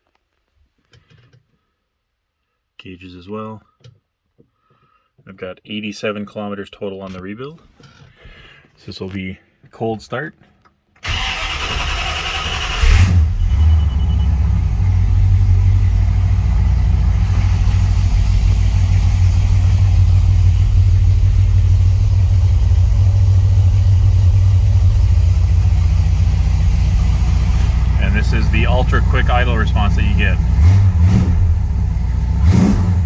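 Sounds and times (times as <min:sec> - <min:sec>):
starter motor cranking: 0:11.0 - 0:13.4
engine idling: 0:11.0 - 0:33.0.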